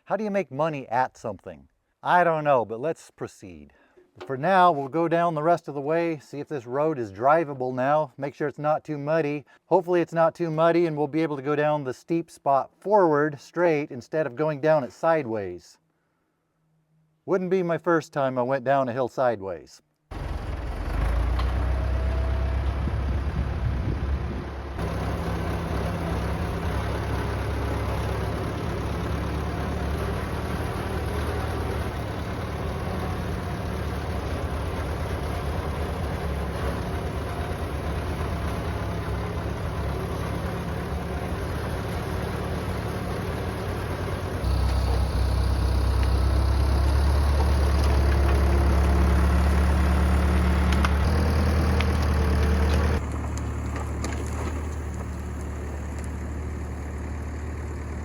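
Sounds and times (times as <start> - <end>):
tractor engine running: 20.1 - 58.0.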